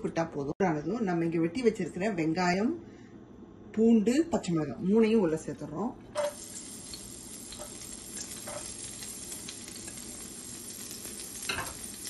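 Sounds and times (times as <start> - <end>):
vegetables sizzling in frying pan: 6.2 - 12.0.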